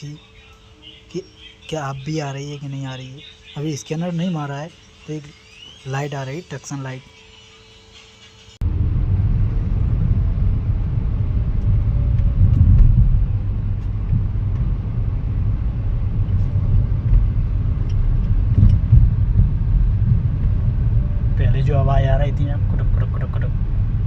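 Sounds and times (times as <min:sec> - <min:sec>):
car rumbling on road: 0:08.6 - 0:24.0.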